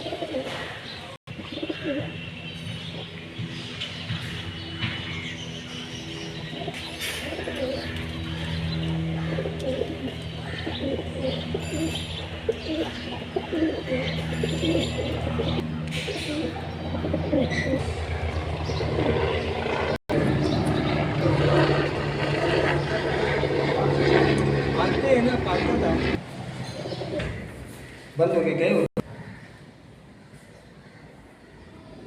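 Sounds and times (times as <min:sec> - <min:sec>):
pigeons cooing: 0:00.0 - 0:02.2, 0:06.2 - 0:21.8, 0:24.8 - 0:28.1
birds chirping: 0:00.0 - 0:29.6
low drone: 0:00.6 - 0:28.2.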